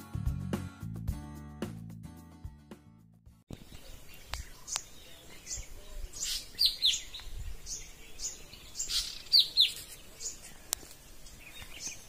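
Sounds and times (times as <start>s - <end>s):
background music: 0.0s - 3.1s
wild birds chirping: 3.5s - 12.0s.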